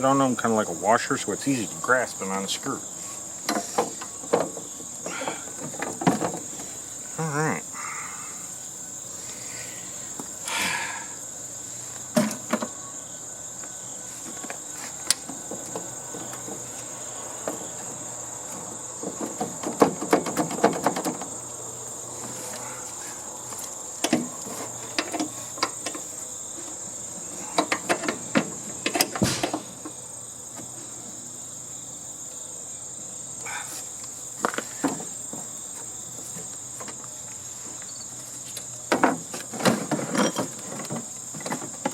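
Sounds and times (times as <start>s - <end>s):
crickets trilling: 0.0s - 41.9s
clicks and rattles on sheet metal: 18.5s - 21.3s, 27.4s - 30.0s.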